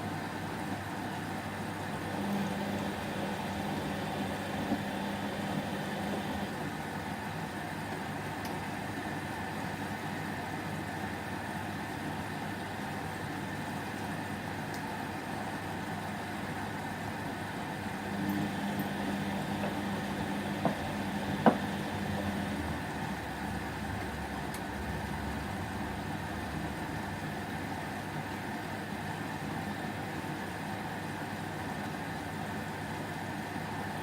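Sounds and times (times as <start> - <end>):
washing machine humming: 0.0 - 34.0.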